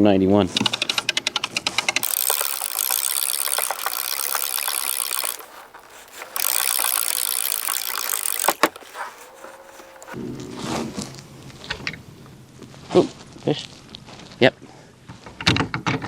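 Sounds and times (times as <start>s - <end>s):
ratchet clicking whir of cranking: 0.6s - 10.2s
sharp clicks: 0.7s - 10.2s.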